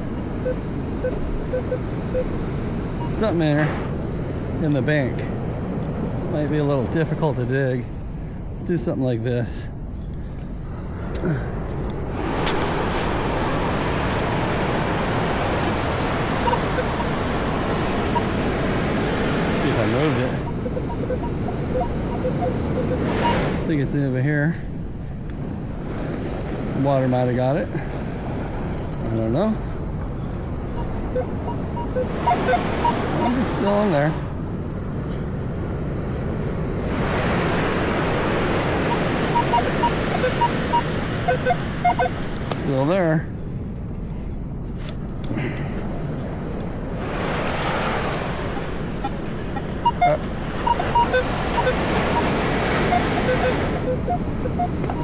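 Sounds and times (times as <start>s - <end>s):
ocean surf washing: 0.0s - 9.2s, 10.7s - 43.3s, 45.6s - 55.0s
metal detector beeps: 3.0s - 3.3s, 12.3s - 23.7s, 30.8s - 34.0s, 36.8s - 42.8s, 47.2s - 55.0s.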